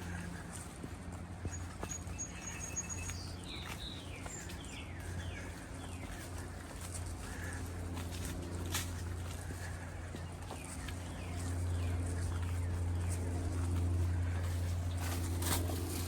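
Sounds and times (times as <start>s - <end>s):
steady low hum: 0.0s - 16.0s
songbird singing: 1.4s - 7.6s, 9.4s - 15.5s.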